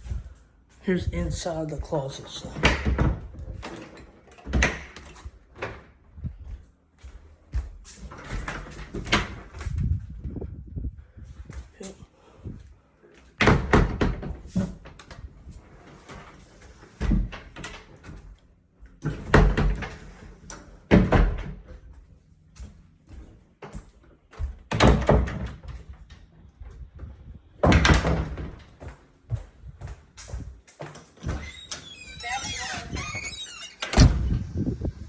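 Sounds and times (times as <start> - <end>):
doors banging and rattling: 2.5 - 5.9, 13.4 - 15.1, 19.0 - 21.8, 23.2 - 26.0, 27.6 - 34.5.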